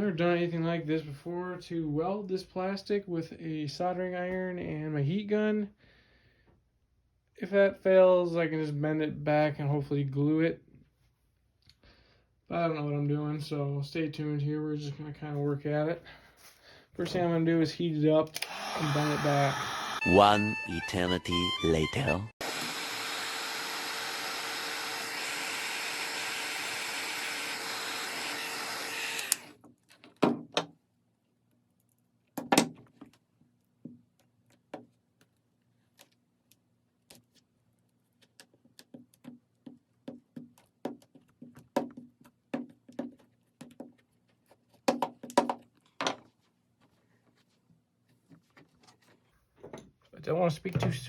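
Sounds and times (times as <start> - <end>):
heat gun blowing: 18.4 - 20.1, 22.4 - 29.5.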